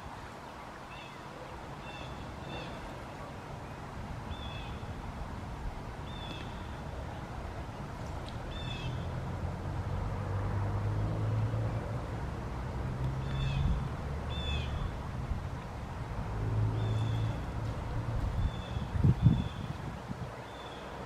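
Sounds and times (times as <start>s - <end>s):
steady outdoor hiss: 0.0s - 21.0s
bird calling: 0.9s - 2.9s, 6.0s - 6.9s.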